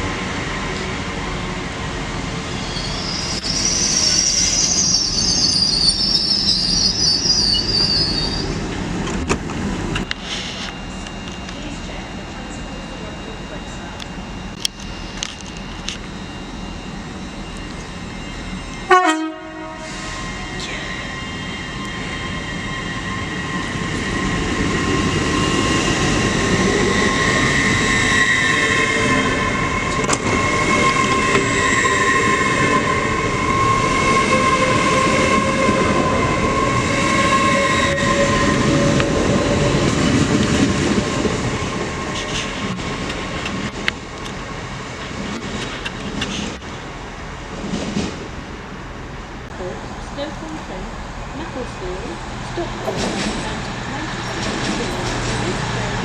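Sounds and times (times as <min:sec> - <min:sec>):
train rumble with high whine: 0:00.0 - 0:56.0
train horn toot: 0:18.8 - 0:21.2, 0:26.8 - 0:39.9.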